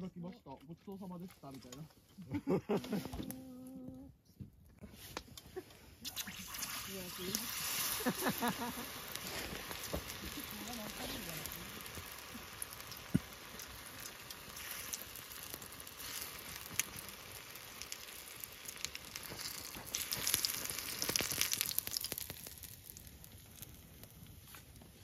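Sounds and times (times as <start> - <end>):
chicken frying in oil: 6.1 - 24.7.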